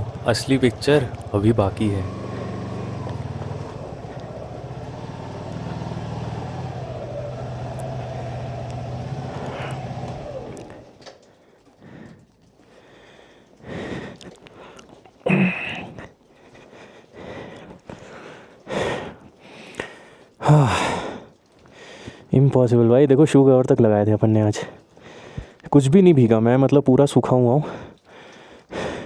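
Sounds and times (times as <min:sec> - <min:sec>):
motorcycle engine idling: 0:00.0 - 0:12.4.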